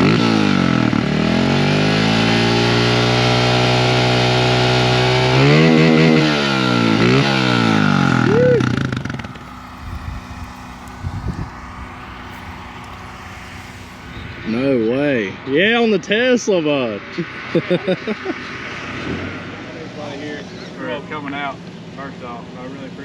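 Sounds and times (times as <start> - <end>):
pit bike engine idling and revving: 0.0 - 15.8.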